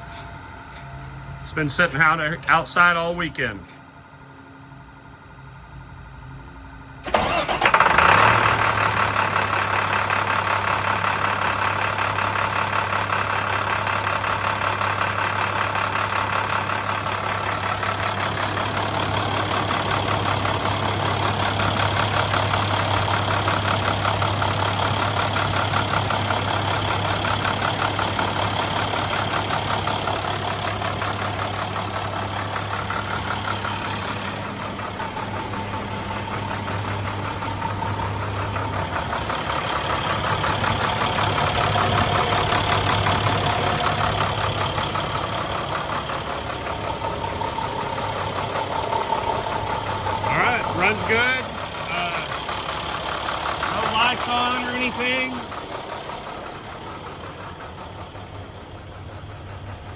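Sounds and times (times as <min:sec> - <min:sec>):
diesel engine starting and idling: 0:00.0 - 0:59.9.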